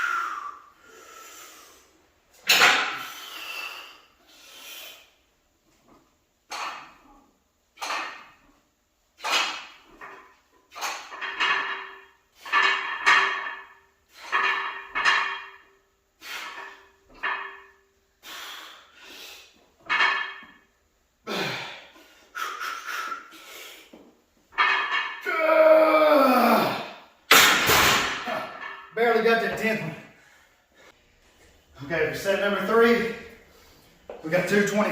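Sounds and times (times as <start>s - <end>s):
man breathing hard and grunting: 21.2s - 23.9s.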